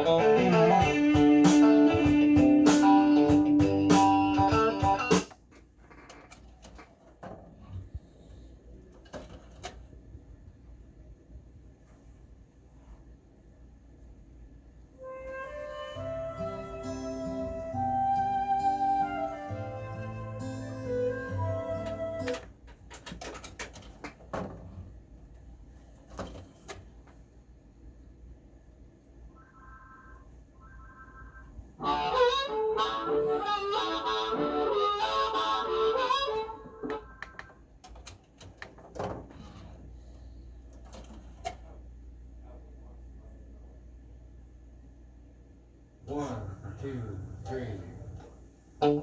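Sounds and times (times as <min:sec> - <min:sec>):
guitar music playing: 0:00.0 - 0:05.3, 0:15.5 - 0:22.4, 0:31.8 - 0:37.3, 0:48.8 - 0:49.0.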